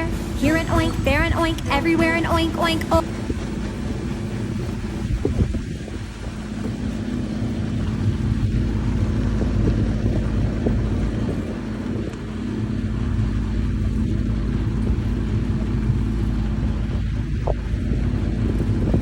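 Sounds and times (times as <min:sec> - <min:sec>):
vehicle engine humming: 0:00.0 - 0:06.4
wind noise on microphone: 0:03.0 - 0:19.0.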